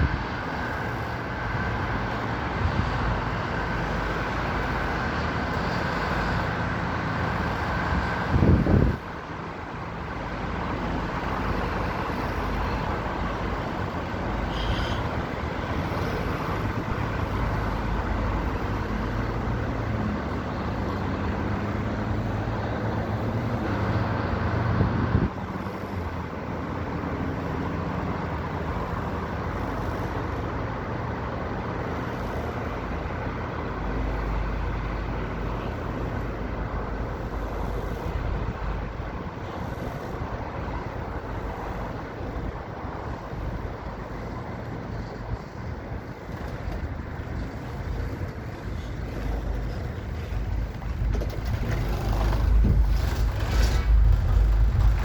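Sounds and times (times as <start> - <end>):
short loud rumbles: 50.9 - 55.0.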